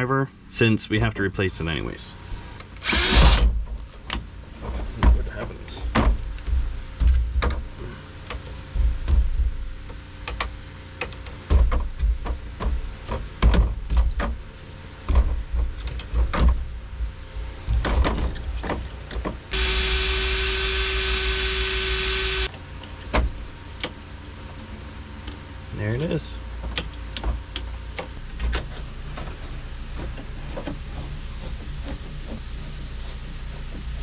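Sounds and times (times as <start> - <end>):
power drill running: 2.8 - 3.4, 19.5 - 22.5.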